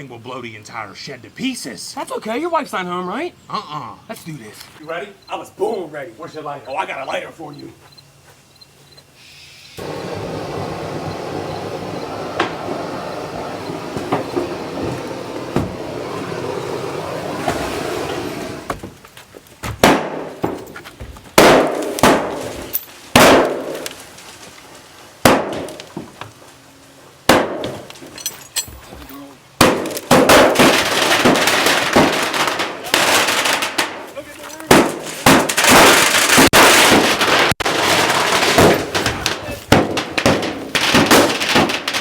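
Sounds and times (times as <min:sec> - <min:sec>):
firework hissing and crackling: 0:09.2 - 0:18.7, 0:37.5 - 0:39.7
sharp loud firework bangs: 0:09.8 - 0:16.0, 0:19.8 - 0:20.4, 0:21.4 - 0:23.8, 0:25.2 - 0:25.8, 0:29.6 - 0:34.0, 0:34.7 - 0:42.0.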